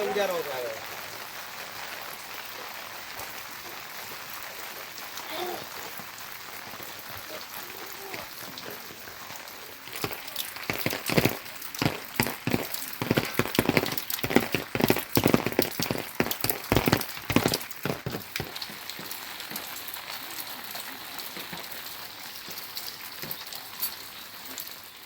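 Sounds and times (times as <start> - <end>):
loud raindrops striking close: 0.0 - 24.7
rain falling: 0.0 - 25.0.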